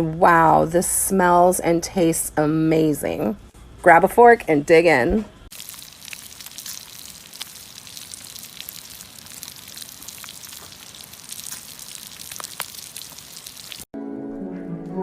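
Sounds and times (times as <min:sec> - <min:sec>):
fire crackling: 0:05.5 - 0:13.9.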